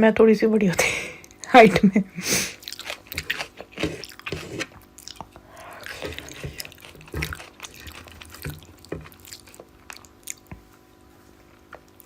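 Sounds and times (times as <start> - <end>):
wet chewing: 2.4 - 10.8, 11.4 - 12.0
mouth clicks and smacks: 2.6 - 10.7.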